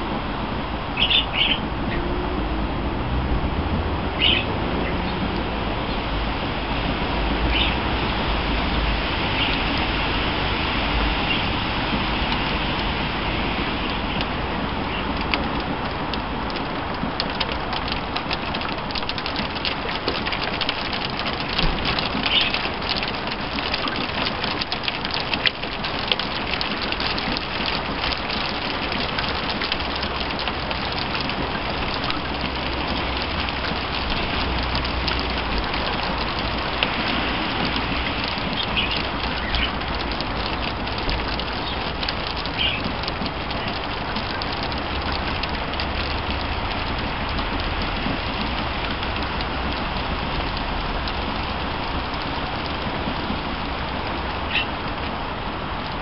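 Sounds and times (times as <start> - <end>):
heavy rain falling: 0.0 - 56.0
raindrops striking close by: 0.0 - 56.0
low rumble: 1.6 - 9.0.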